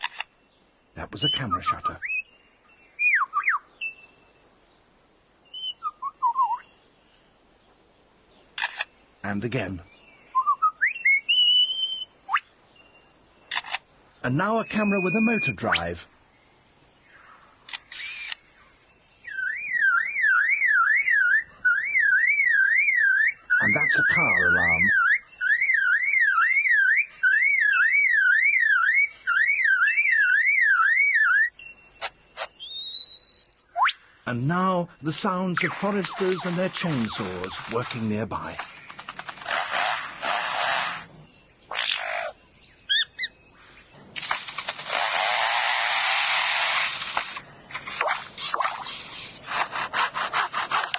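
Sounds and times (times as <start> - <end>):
lyrebird whistling song: 0.0 - 7.0, 9.8 - 16.0, 17.0 - 44.0
bird mimicking a car alarm: 19.3 - 31.6.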